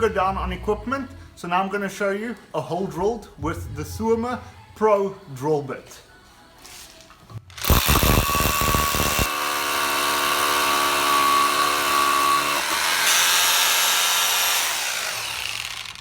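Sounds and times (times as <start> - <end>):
hammer drill drilling: 7.5 - 16.0.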